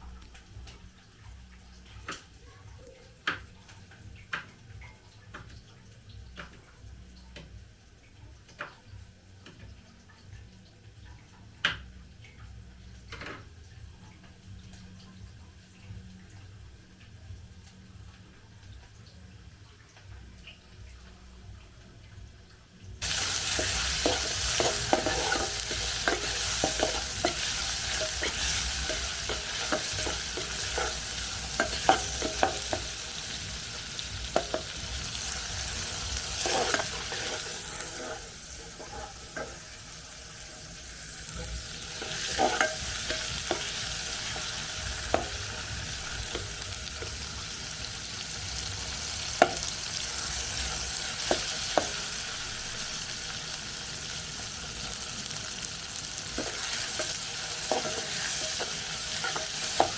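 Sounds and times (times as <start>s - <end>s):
food sizzling in a pan: 0.0s - 59.9s
utensil scraping a pan: 23.1s - 33.0s, 36.2s - 39.7s, 41.4s - 45.6s.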